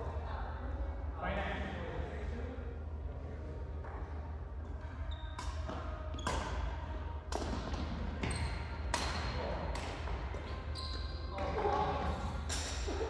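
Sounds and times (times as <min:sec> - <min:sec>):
shoe squeaks on court floor: 0:05.0 - 0:06.7, 0:08.2 - 0:08.8, 0:10.4 - 0:12.7
rackets hitting shuttlecock: 0:05.4 - 0:10.6.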